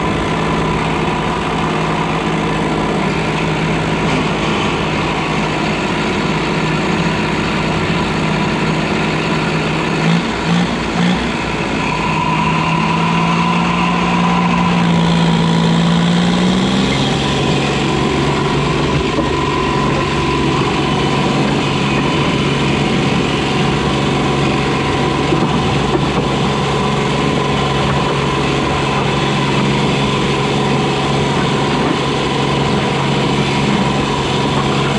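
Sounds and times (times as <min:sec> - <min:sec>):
diesel tractor engine running: 0:00.0 - 0:34.9.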